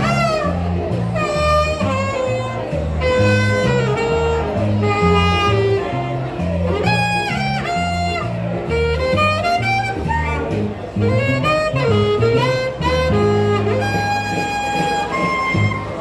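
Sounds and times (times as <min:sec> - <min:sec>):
bass line: 0:00.0 - 0:16.0
saxophone melody: 0:00.0 - 0:16.0.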